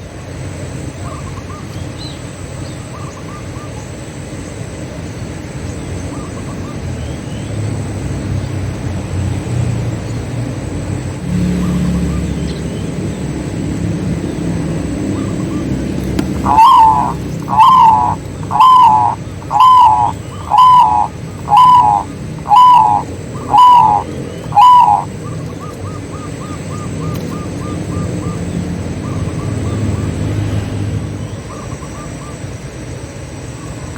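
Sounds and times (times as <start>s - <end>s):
low background rumble: 10.0s - 29.8s
bird calling loudly: 15.1s - 29.8s
faint bird chirps: 15.2s - 29.8s.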